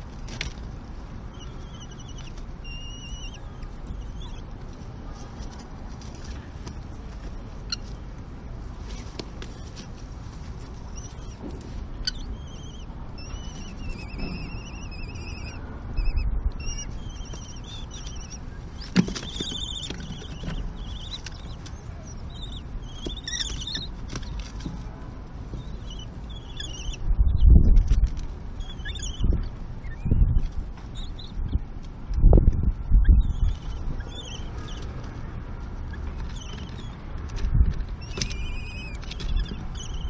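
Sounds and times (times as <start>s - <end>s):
chicks begging calls: 0.9s - 5.4s, 10.7s - 24.6s, 25.2s - 27.8s, 32.8s - 37.2s.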